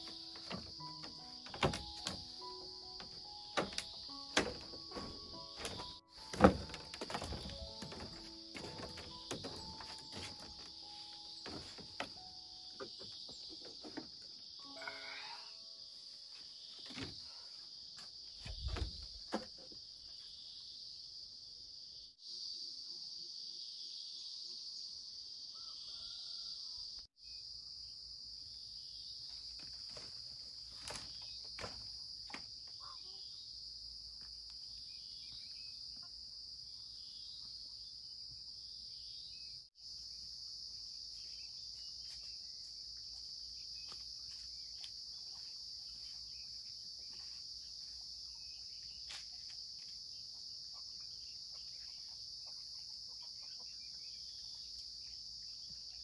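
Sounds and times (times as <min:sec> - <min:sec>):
high-pitched insect drone: 0:14.4 - 0:16.1.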